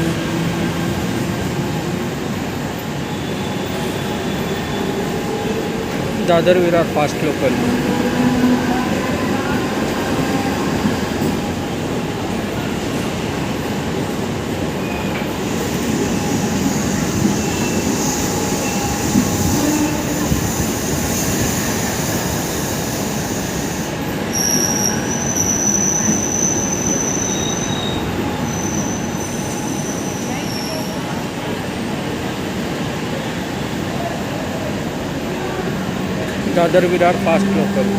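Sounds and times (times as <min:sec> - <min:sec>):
train wheels rumbling: 0:00.0 - 0:37.9
high wheel squeal: 0:03.0 - 0:05.3, 0:14.8 - 0:31.0.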